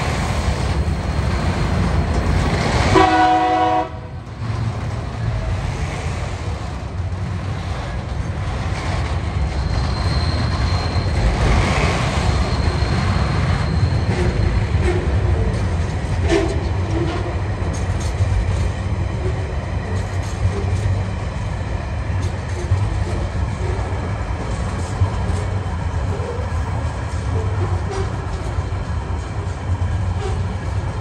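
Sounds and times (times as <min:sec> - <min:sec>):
freight train rumbling past: 0:00.0 - 0:31.0
wheels clicking over rail joints: 0:04.2 - 0:31.0
high wheel squeal: 0:09.2 - 0:15.6.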